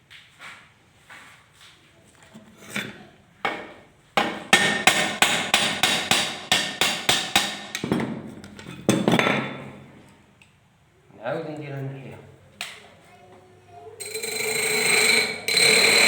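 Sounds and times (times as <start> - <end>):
hammer striking metal: 3.5 - 8.0, 14.0 - 16.0.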